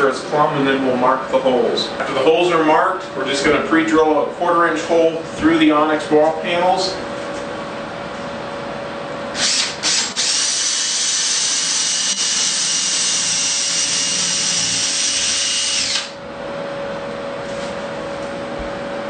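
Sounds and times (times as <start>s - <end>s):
power drill whining: 9.4s - 16.2s.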